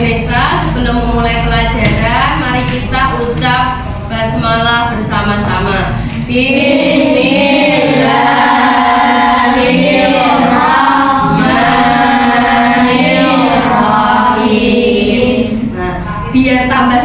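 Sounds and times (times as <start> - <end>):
group chanting prayer in unison: 6.3 - 15.8.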